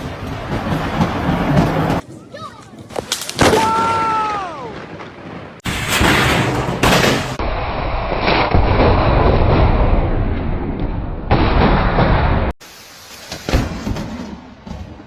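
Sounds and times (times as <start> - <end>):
thunder crack: 3.4 - 12.6
heavy thunder rumble: 3.8 - 12.6.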